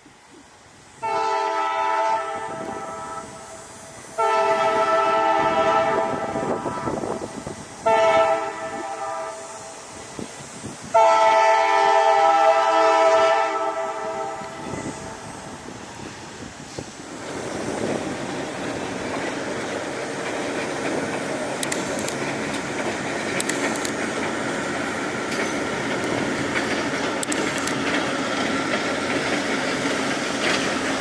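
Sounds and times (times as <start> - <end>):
train rolling noise: 0.0 - 31.0
locomotive air horn blasts: 1.0 - 3.6, 4.2 - 9.8, 10.9 - 15.3
locomotive engine rumble: 12.1 - 31.0.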